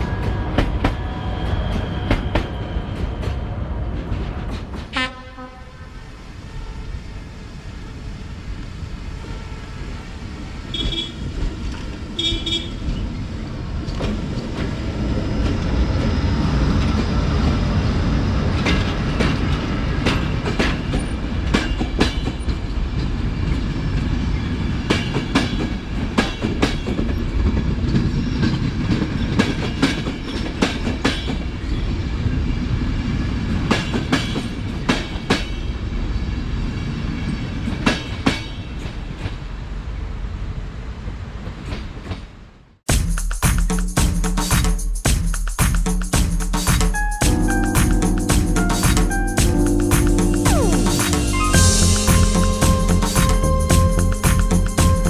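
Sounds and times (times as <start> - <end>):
train rumbling past: 0.0 - 42.8, 46.6 - 55.0
high-pitched train horn toots: 4.9 - 11.4, 12.2 - 12.9, 50.2 - 55.0.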